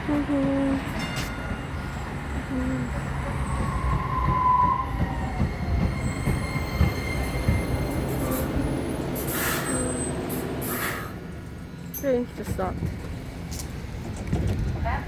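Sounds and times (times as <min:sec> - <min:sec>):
train wheels rumbling on rails: 0:00.0 - 0:15.0
high wheel squeal: 0:03.3 - 0:11.3.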